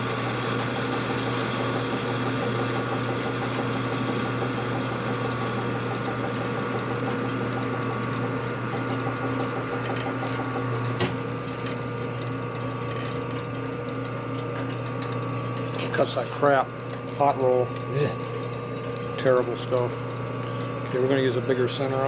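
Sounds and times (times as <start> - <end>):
metal lathe running: 0.0 - 22.0.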